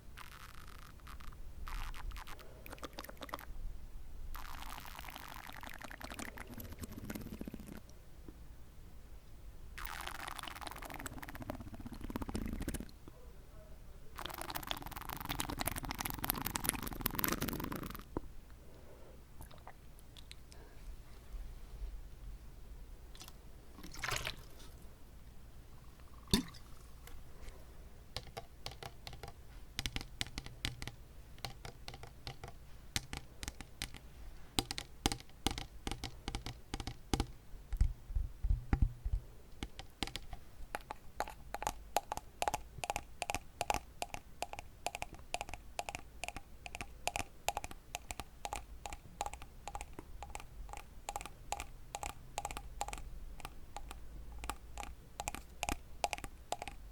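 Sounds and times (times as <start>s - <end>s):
tapping on water bottle: 28.2s - 34.0s, 34.6s - 50.5s.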